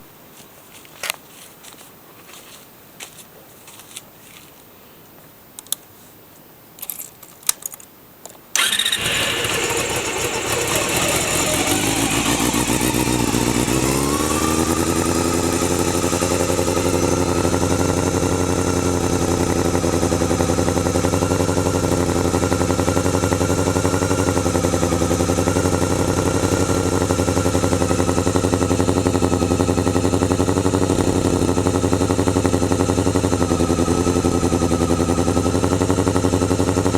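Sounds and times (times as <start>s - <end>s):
motorcycle engine idling: 8.6s - 36.9s.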